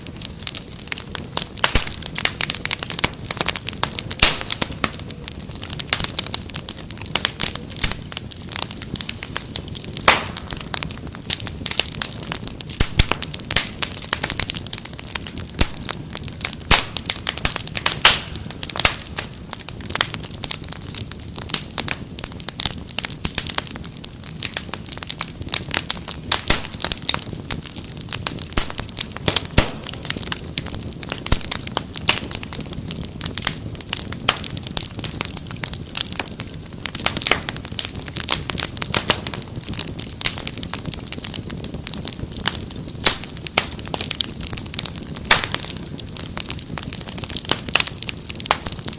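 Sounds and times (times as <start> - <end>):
fireplace fire crackling: 0.0 - 48.9.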